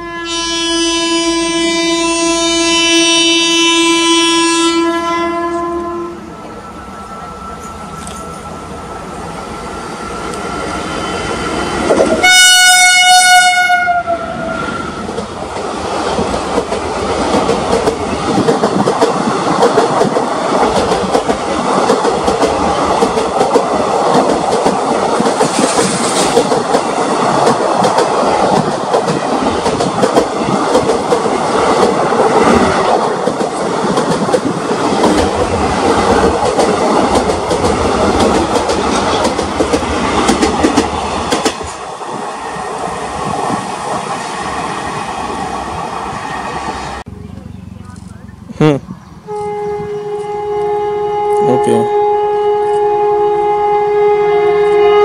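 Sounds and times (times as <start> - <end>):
locomotive horn: 0.0 - 6.3, 12.1 - 14.9, 49.3 - 55.0
rumble of train wheels: 1.0 - 55.0
clickety-clack of rail joints: 11.8 - 12.2, 15.0 - 41.9.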